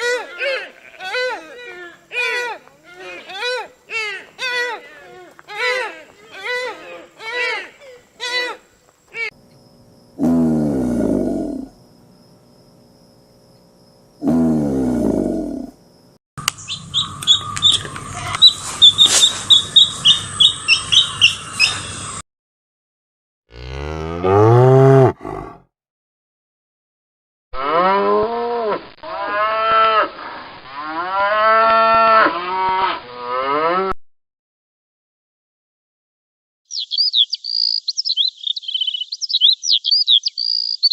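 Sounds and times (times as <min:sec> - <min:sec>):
rapid high chirping: 0:16.4 - 0:22.2, 0:36.7 - 0:40.9
cattle mooing: 0:23.5 - 0:25.6.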